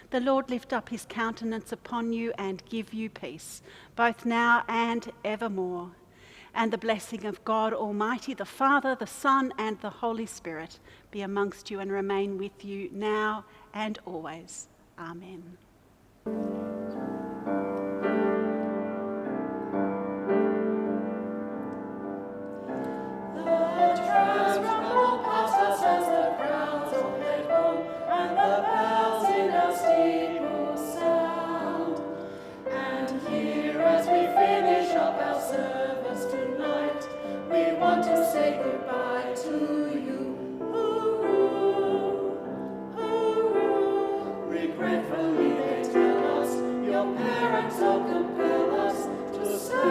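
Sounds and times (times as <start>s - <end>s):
piano accompaniment: 16.3s - 49.9s
choir singing: 22.8s - 49.9s.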